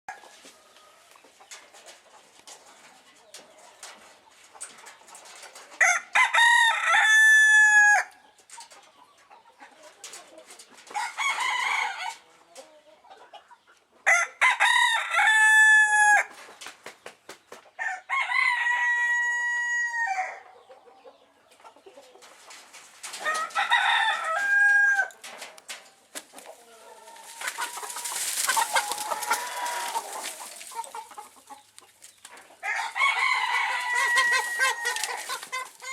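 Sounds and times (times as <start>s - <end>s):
rooster crowing: 5.8s - 8.1s, 14.1s - 16.3s, 17.8s - 20.4s, 23.2s - 25.1s, 26.8s - 30.5s, 32.6s - 35.9s.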